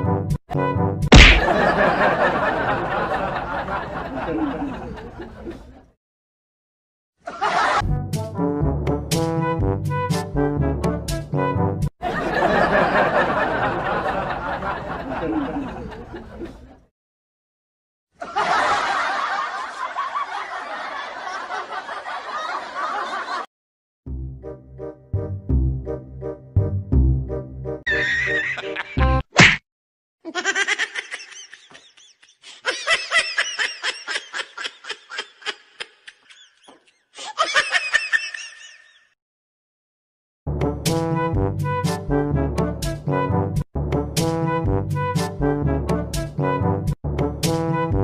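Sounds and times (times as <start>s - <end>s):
laugh track chuckling: 1.4s - 5.9s, 12.0s - 16.9s, 18.2s - 23.5s, 27.9s - 29.2s, 30.2s - 39.1s
person laughing high-pitched: 27.9s - 29.2s, 30.3s - 39.1s.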